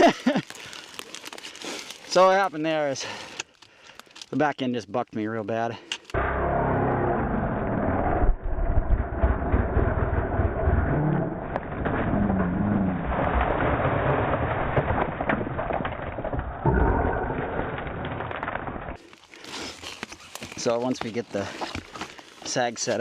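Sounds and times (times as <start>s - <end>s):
dirt bike engine: 6.2s - 13.0s.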